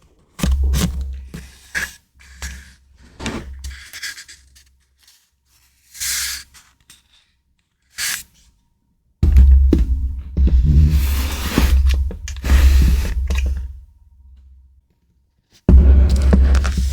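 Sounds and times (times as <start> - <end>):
paper rubbing and sliding: 9.9 - 13.8, 15.7 - 16.9.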